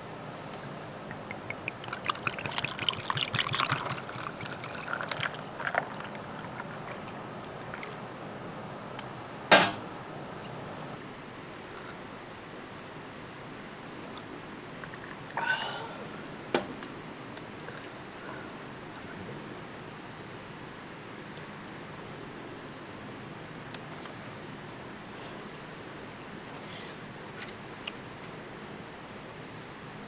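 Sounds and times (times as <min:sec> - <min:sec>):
liquid pouring and splashing: 0:01.1 - 0:08.1
sharp clack: 0:09.5 - 0:09.9.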